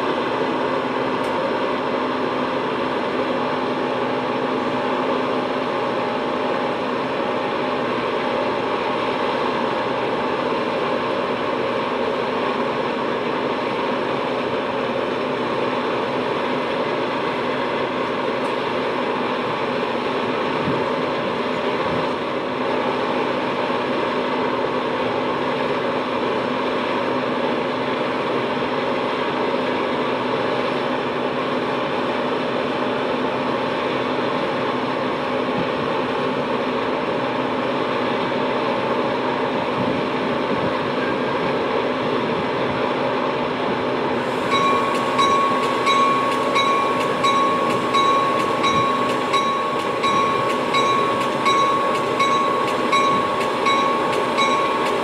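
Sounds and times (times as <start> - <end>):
idling train equipment drone: 0.0 - 55.0
electronic door warning tone: 44.4 - 55.0.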